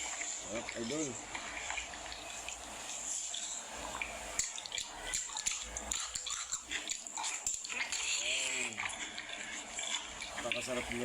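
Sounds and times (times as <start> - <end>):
wet chewing and smacking: 3.3 - 10.4.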